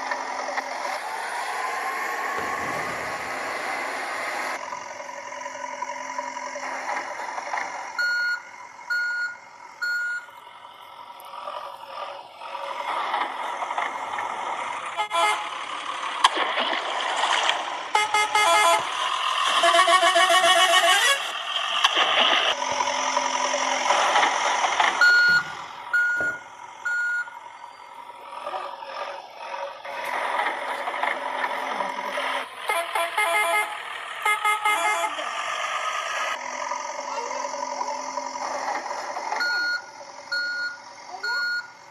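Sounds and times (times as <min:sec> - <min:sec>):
short electronic beeps: 0:08.0 - 0:10.3, 0:25.0 - 0:27.7, 0:39.4 - 0:41.8
toy horns tooting: 0:15.0 - 0:15.6, 0:17.9 - 0:18.9, 0:19.5 - 0:21.4, 0:32.6 - 0:35.3.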